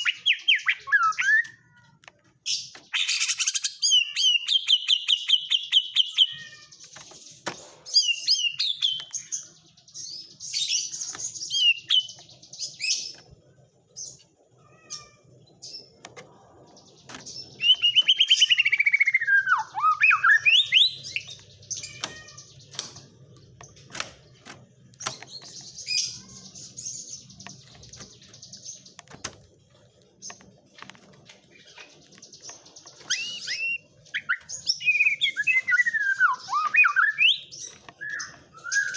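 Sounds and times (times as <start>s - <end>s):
bird singing trills: 0.0s - 38.9s.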